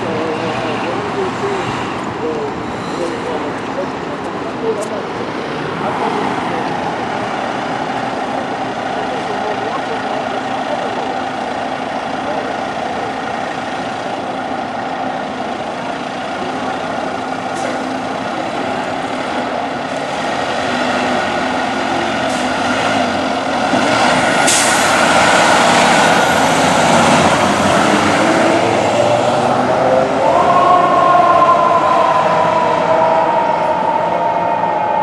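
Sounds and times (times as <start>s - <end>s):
diesel truck engine running: 0.0s - 35.0s
air brake hiss: 24.4s - 25.0s.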